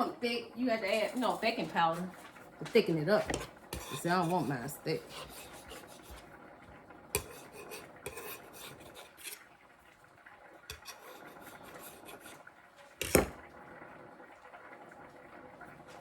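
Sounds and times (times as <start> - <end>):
utensils scraping and clinking: 3.1 - 6.2, 7.2 - 9.4, 10.7 - 12.4.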